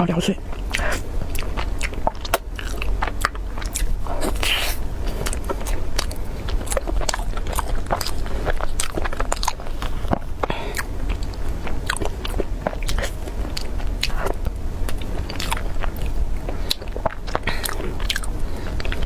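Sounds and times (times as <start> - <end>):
person chewing and biting food: 0.4 - 19.0
sharp food crackles: 0.5 - 19.0.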